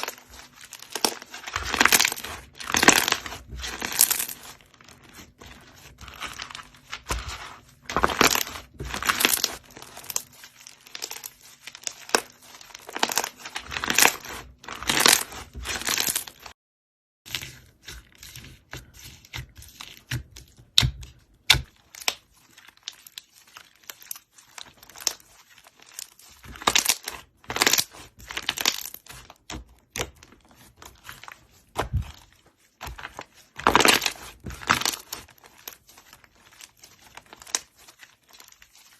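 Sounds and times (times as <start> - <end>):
slime squishing: 0.0 - 16.5, 17.3 - 38.9
slime clicking and crackling: 32.8 - 38.9.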